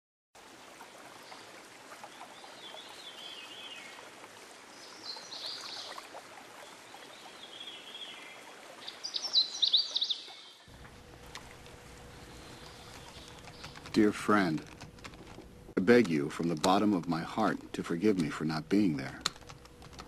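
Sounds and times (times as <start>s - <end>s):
background hiss: 0.4s - 20.0s
songbirds singing: 1.2s - 15.2s.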